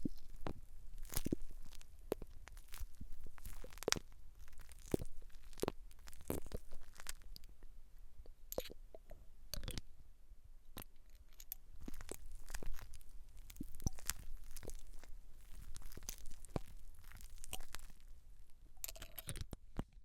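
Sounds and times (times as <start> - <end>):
hair crackling and scratching: 11.8 - 18.2.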